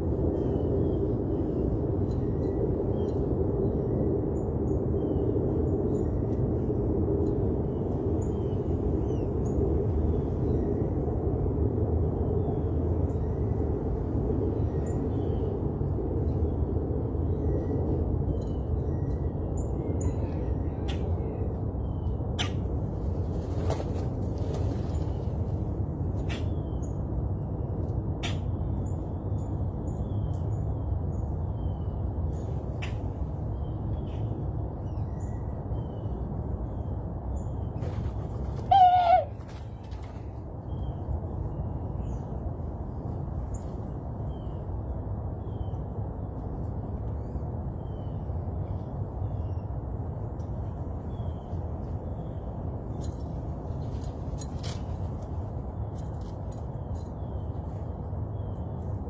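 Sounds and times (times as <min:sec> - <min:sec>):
loud wavering bird call: 0:38.6 - 0:39.5.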